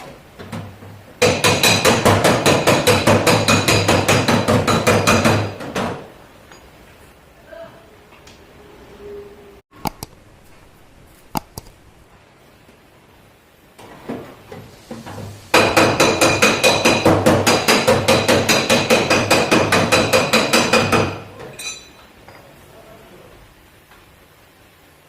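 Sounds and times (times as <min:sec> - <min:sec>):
hammer striking sheet metal: 0:01.2 - 0:05.6, 0:15.6 - 0:21.1.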